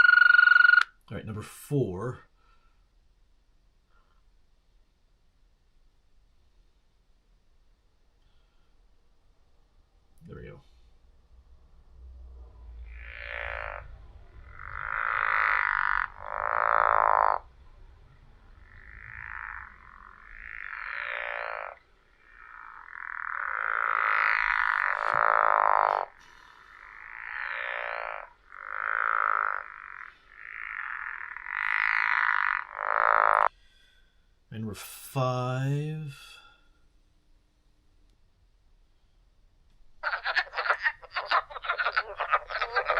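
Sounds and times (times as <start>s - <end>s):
frogs trilling: 0.0s - 1.0s, 12.8s - 33.6s, 40.0s - 42.9s.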